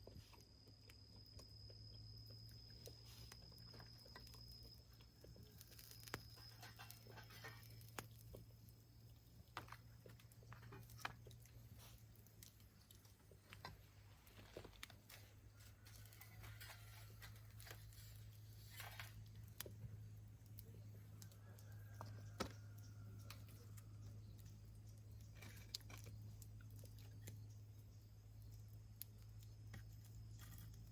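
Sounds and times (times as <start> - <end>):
low steady hum: 0.0 - 30.9
wood fire crackling: 0.2 - 30.9.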